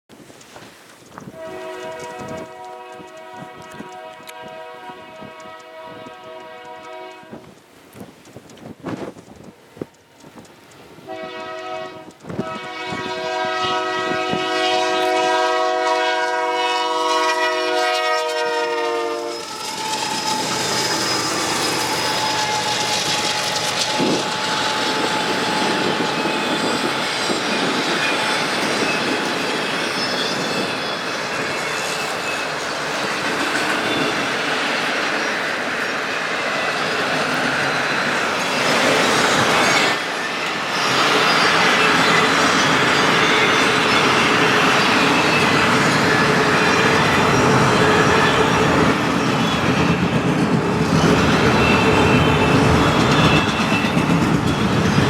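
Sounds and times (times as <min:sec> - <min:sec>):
locomotive air horn blast: 0:01.3 - 0:07.5, 0:11.1 - 0:26.0
freight cars rumbling and clattering: 0:40.8 - 0:55.0.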